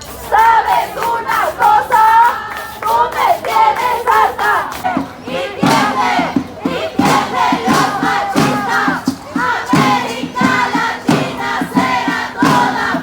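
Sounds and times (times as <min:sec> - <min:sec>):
women chanting in unison: 0:00.3 - 0:13.0
steady drum beat: 0:04.8 - 0:13.0.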